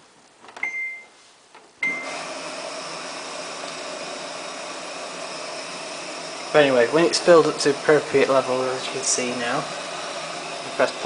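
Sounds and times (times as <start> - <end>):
washing machine beeps: 0.6 - 1.2, 1.8 - 2.4
water rushing in: 2.0 - 11.0.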